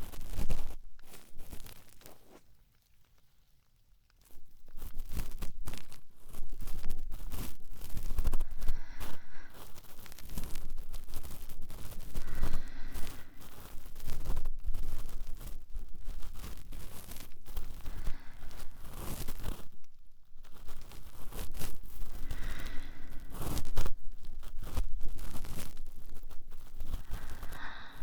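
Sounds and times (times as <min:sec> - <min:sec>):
fireplace crackles: 0:00.0 - 0:28.0.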